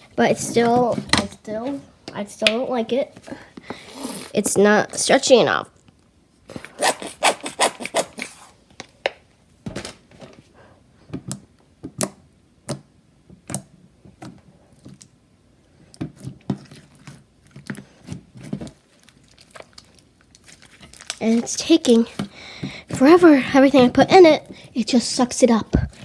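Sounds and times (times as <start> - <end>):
slime kneaded by hand: 16.0 - 26.0.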